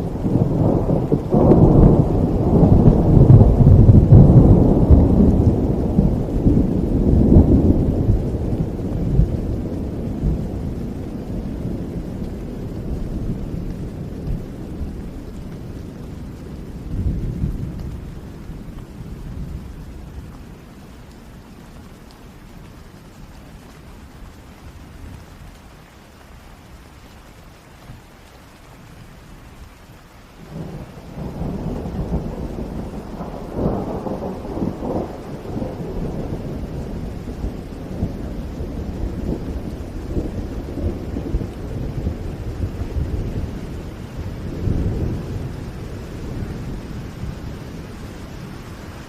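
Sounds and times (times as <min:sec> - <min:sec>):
rolling thunder: 0:00.0 - 0:18.7, 0:30.4 - 0:49.0
steady rain: 0:00.0 - 0:49.0.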